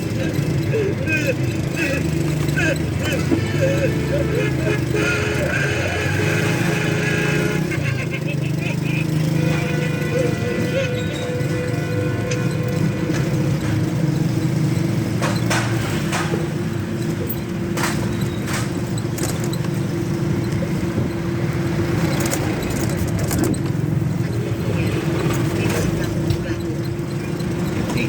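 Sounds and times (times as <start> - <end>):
vehicle engine rumbling: 0.0 - 28.0
short clicks and rattles: 11.5 - 28.0.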